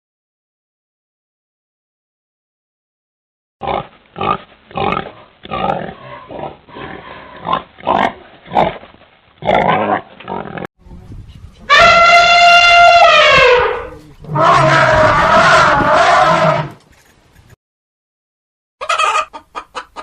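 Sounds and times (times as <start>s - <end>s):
elephant trumpeting: 11.7s - 16.8s.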